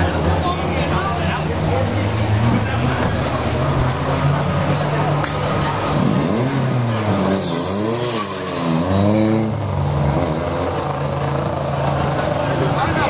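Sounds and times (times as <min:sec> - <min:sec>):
low engine hum: 0:00.0 - 0:07.1
race car engine revving: 0:00.0 - 0:13.0.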